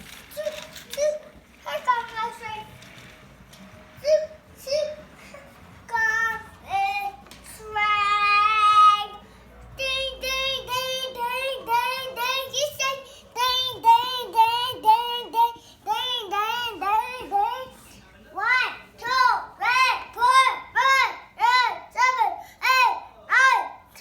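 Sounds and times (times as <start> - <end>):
young child singing: 4.0 - 5.1, 5.9 - 9.2, 9.8 - 17.8, 18.4 - 24.0.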